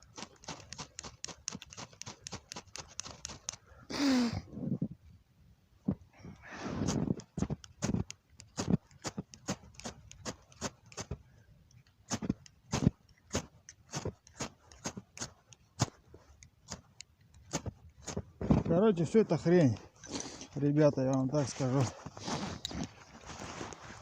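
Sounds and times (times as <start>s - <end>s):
fire steel scraping: 17.4s - 24.0s.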